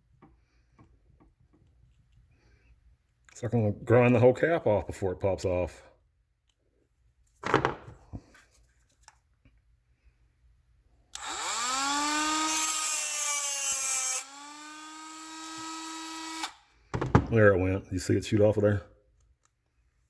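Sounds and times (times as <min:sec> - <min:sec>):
rotary tool grinding: 0:11.2 - 0:16.6.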